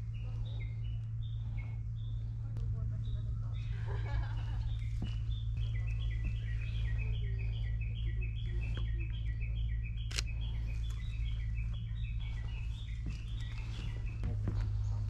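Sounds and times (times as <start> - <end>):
low steady hum: 0.0 - 15.0
camera shutter click: 10.1 - 10.3.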